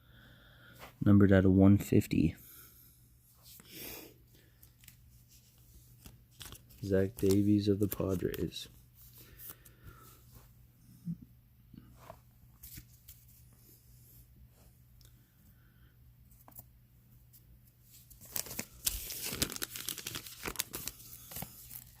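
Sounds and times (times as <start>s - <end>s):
handling of trading cards: 4.4s - 10.2s, 17.3s - 22.0s
card pack wrapper tearing and crinkling: 6.0s - 8.6s, 18.0s - 22.0s.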